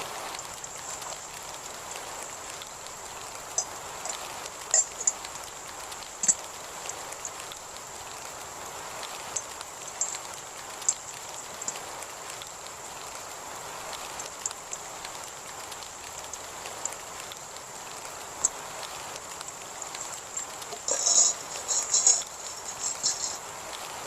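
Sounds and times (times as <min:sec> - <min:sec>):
steady rain falling: 0:00.0 - 0:24.0
drops ticking on a surface: 0:00.3 - 0:07.9
thin high whine: 0:19.8 - 0:24.0.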